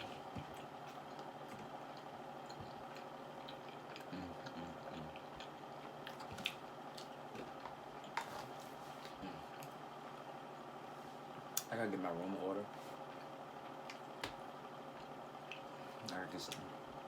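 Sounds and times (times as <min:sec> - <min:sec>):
person chewing food: 0:00.0 - 0:09.8
faint background hum: 0:00.0 - 0:17.0.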